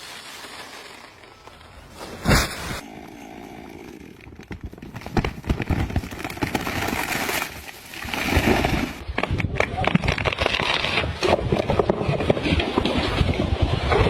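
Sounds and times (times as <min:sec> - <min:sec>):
wood cracking and knocking: 0:04.3 - 0:13.0.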